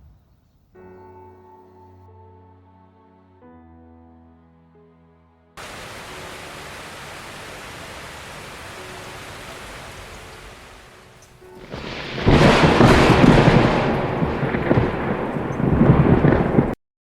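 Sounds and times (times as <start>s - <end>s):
soft steady hiss: 5.6s - 11.7s
rolling rumble of thunder: 5.6s - 16.8s.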